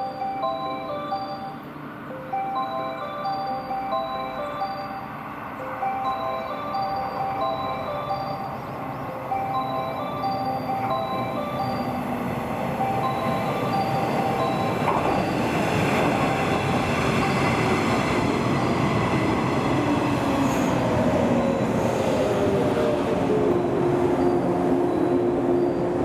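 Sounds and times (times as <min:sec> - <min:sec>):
electric train running: 0:00.0 - 0:26.0
train brakes whining: 0:12.8 - 0:19.2.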